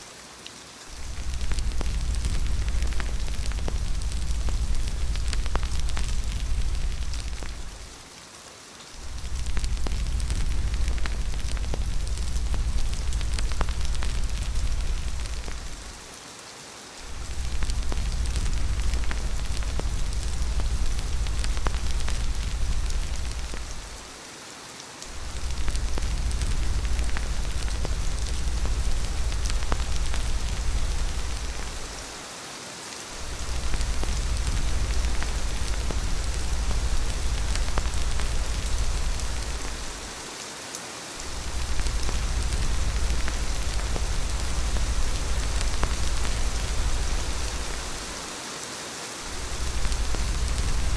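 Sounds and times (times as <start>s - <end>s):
rain drops ticking: 0.0s - 50.9s
steady rain hiss: 0.0s - 50.9s
low rumble of wind: 0.9s - 8.1s, 8.9s - 16.2s, 16.9s - 24.2s, 25.0s - 32.3s, 33.1s - 40.3s, 41.2s - 48.4s, 49.2s - 50.9s.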